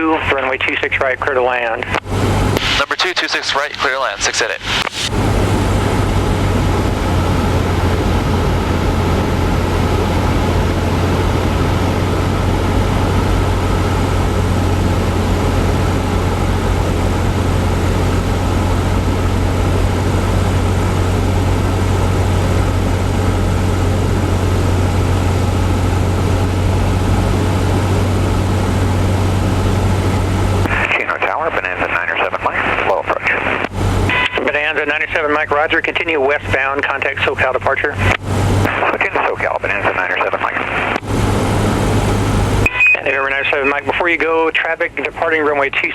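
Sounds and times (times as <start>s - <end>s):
propeller plane engine drone: 0.0s - 45.9s.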